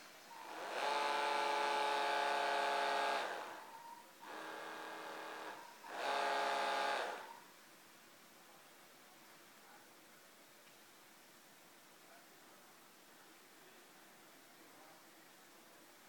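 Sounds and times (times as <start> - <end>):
small electric motor whining: 0.4 - 3.6, 4.2 - 7.4.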